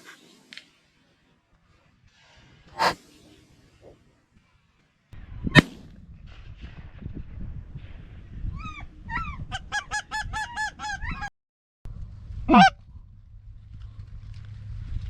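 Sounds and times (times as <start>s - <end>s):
goose honking: 12.5s - 12.7s.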